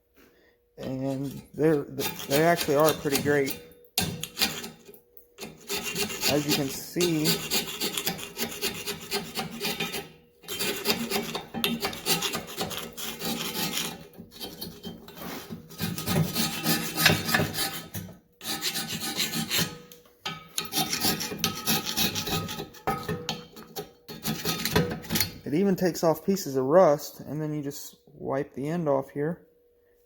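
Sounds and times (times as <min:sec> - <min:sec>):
hand scraper rasping on metal: 0:00.8 - 0:19.8, 0:20.6 - 0:25.3.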